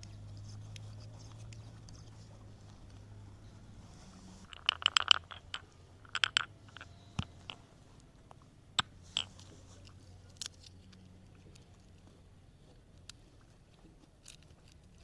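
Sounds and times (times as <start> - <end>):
crunching clicks from food preparation: 13.0 - 15.0.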